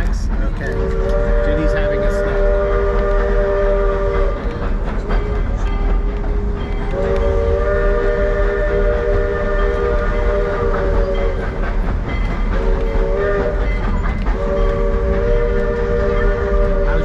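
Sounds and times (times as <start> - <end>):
train rumble and rail noise: 0.0 - 17.0
steam locomotive whistle: 0.6 - 11.6, 12.5 - 17.0.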